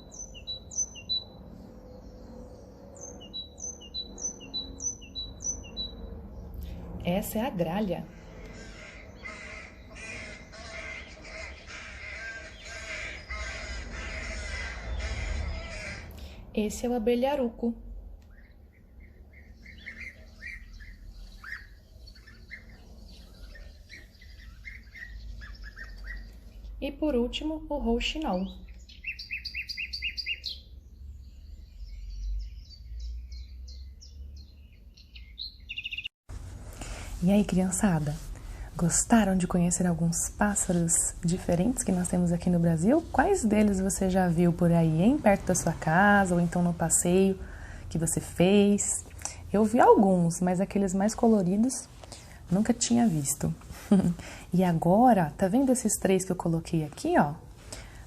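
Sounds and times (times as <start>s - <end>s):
nightingale singing: 0.0s - 6.8s, 18.3s - 26.8s, 28.2s - 36.2s
low background rumble: 0.0s - 29.8s, 36.3s - 58.0s
crow cawing: 8.4s - 16.2s.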